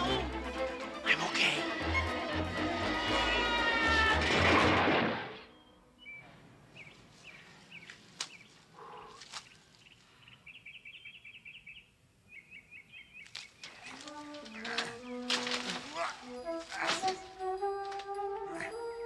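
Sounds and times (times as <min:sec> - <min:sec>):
birds chirping and twittering: 0:05.4 - 0:17.4.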